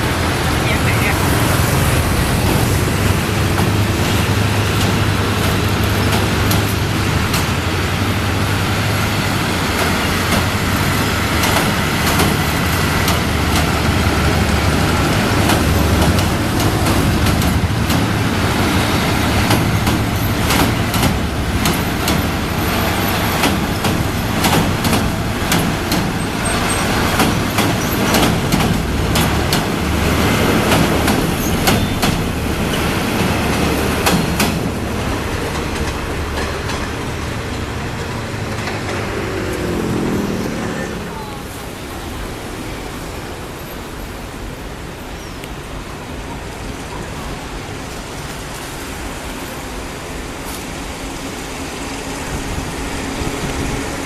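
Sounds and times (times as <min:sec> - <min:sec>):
diesel train engine drone: 0:00.0 - 0:54.0
train wheels clicking over rail joints: 0:01.2 - 0:40.6.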